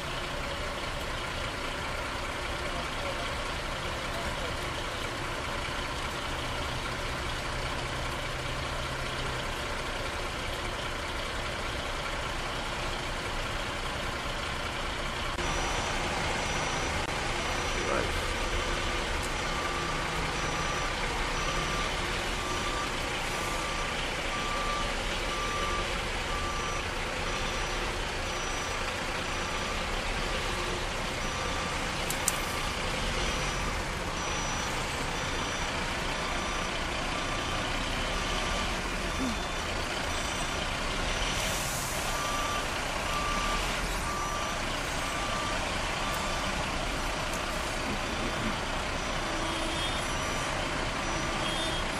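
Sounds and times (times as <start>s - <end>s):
truck diesel engine running: 0.0s - 51.9s
reversing alarm beeping: 15.3s - 51.9s.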